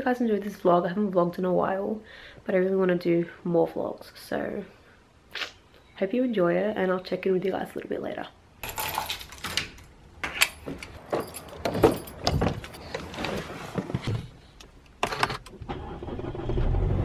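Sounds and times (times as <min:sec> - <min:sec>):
keys jangling: 0:08.6 - 0:13.0.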